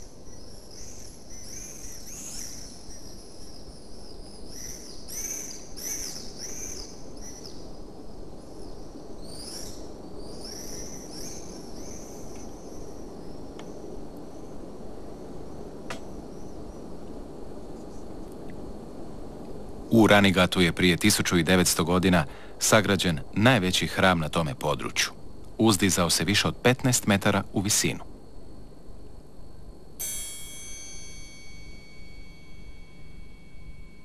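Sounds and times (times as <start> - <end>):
outdoor ambient hiss: 0.0 - 34.0.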